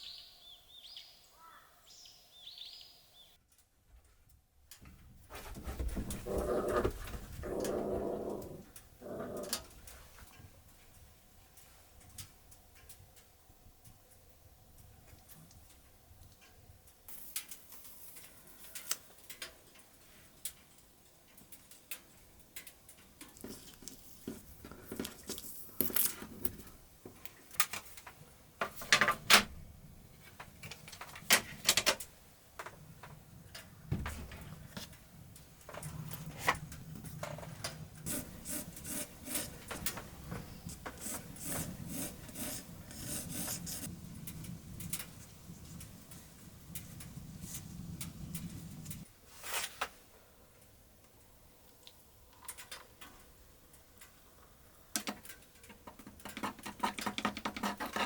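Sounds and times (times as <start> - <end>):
paintbrush scratching on paper: 38.1 - 39.7, 41.0 - 43.9.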